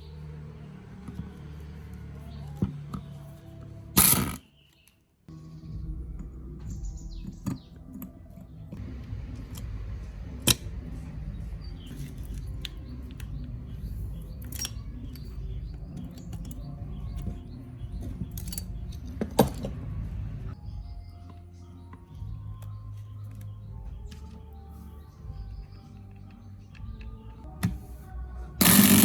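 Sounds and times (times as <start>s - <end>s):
metal parts and tools clinking: 4.0s - 4.4s, 13.9s - 19.8s, 28.6s - 29.0s.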